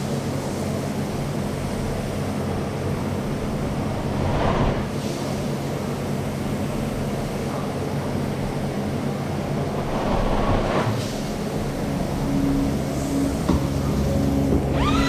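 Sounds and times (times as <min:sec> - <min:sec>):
loud rushing swell: 0:03.2 - 0:05.0, 0:09.4 - 0:13.3.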